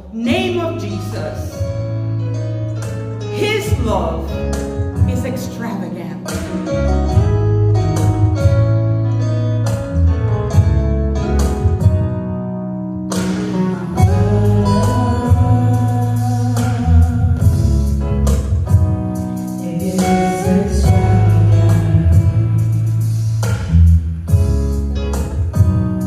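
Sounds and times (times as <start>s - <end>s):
person singing: 13.4s - 17.9s, 19.6s - 22.8s.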